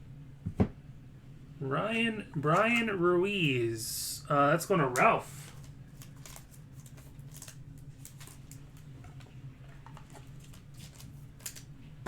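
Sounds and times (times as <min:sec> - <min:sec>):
low electrical hum: 0:00.0 - 0:12.0
cards scraping and clicking: 0:05.0 - 0:08.6.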